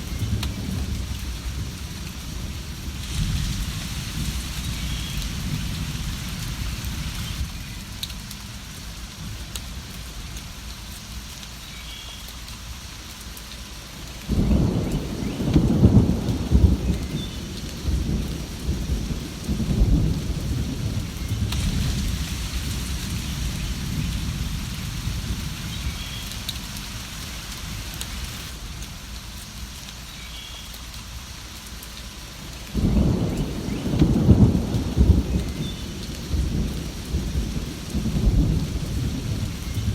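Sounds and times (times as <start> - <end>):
thunder rumbling: 0.0 - 7.9, 14.3 - 28.7, 32.7 - 39.9
steady rain: 0.0 - 39.9.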